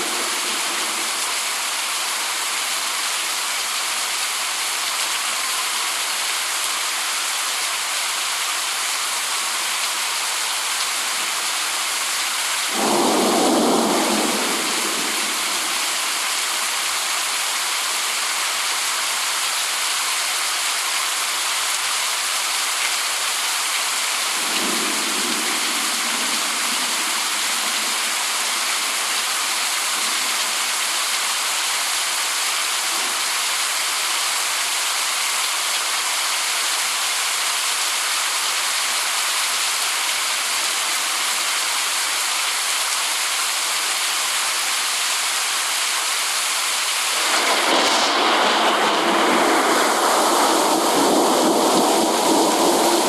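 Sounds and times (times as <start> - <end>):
heavy rain hiss: 0.0 - 53.0.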